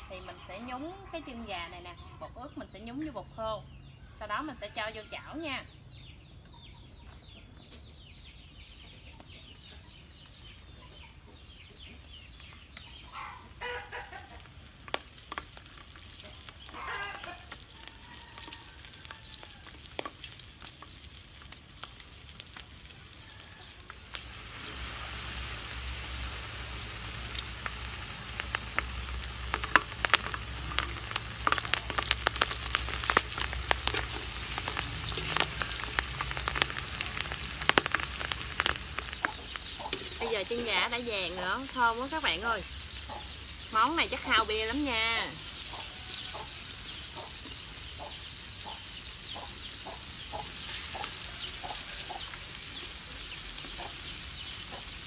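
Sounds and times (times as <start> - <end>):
food sizzling in hot oil: 12.0 - 55.0.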